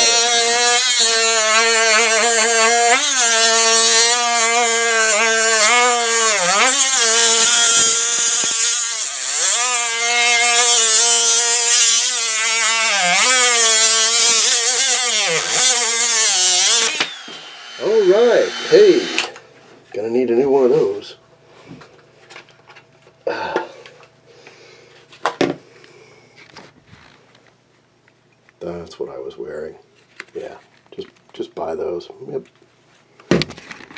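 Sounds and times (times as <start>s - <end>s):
rotary tool cutting plywood: 0.0s - 19.4s.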